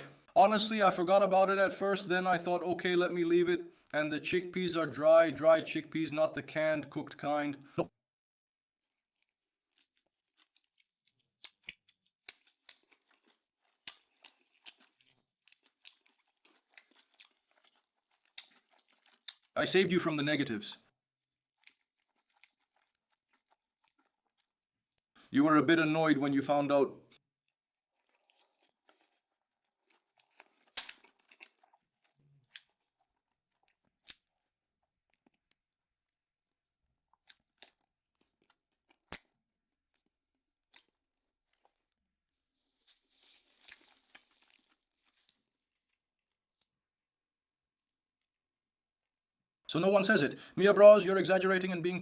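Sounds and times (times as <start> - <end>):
person chewing soft food: 8.8 - 19.6, 21.4 - 25.2, 27.5 - 42.0, 42.6 - 47.0.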